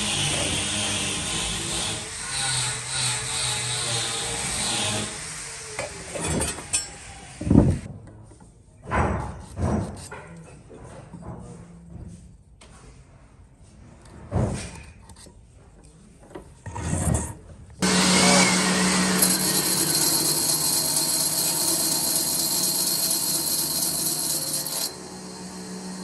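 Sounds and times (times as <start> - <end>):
power tool cutting wood: 17.8 - 26.0.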